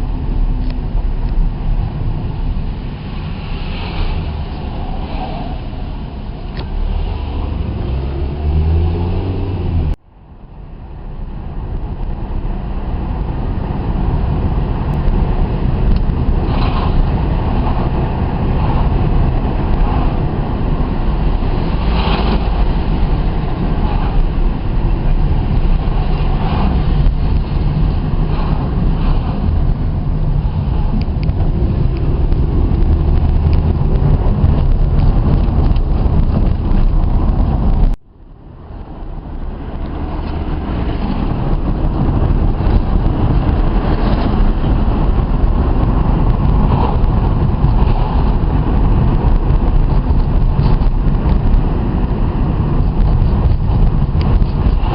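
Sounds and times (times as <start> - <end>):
vehicle engine and road rumble: 0.0 - 54.9.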